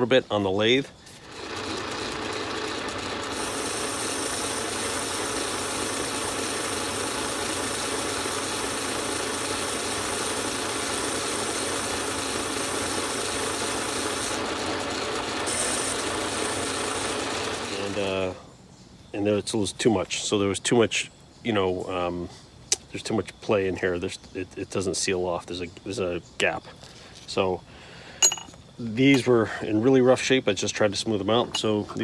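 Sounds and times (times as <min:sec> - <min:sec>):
metal lathe running: 0:01.1 - 0:18.4.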